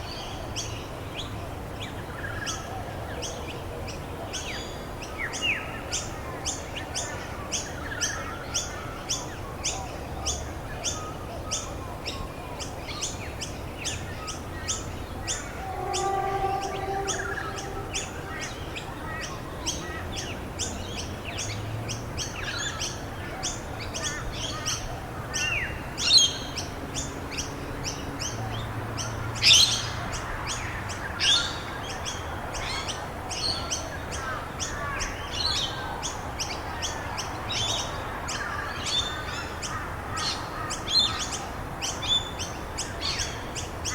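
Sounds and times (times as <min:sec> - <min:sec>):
downward sweeping bird calls: 0:14.7 - 0:19.2
bird chirping: 0:15.3 - 0:18.8.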